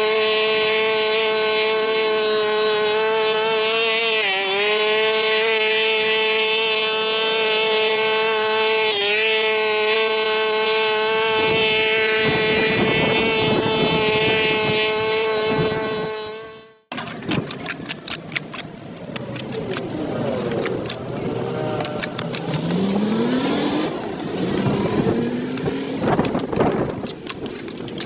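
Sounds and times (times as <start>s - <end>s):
pressure washer motor whine: 19.5s - 26.4s.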